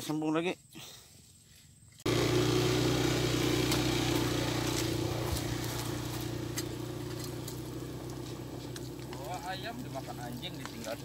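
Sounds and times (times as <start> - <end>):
small engine idling: 2.1 - 11.0.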